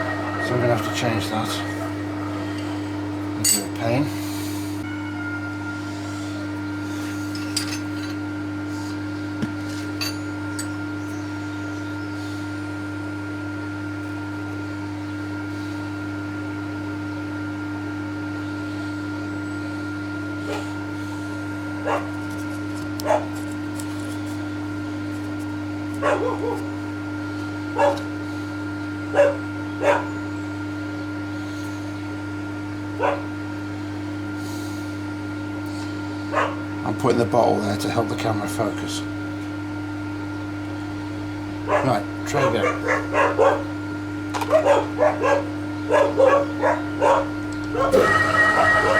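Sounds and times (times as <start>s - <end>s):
machine hum: 0.0s - 9.4s, 25.6s - 48.9s
dog barking: 21.8s - 22.2s, 23.0s - 23.4s, 26.0s - 26.7s, 27.8s - 28.1s, 29.1s - 30.2s, 33.0s - 33.4s, 36.3s - 36.7s, 41.6s - 43.8s, 44.4s - 48.9s.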